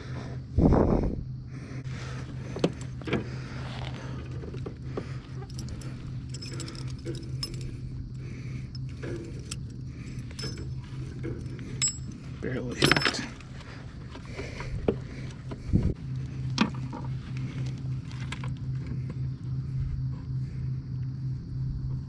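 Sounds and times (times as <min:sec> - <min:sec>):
low steady hum: 0:00.0 - 0:22.0
fishing tackle clinking: 0:04.3 - 0:13.7.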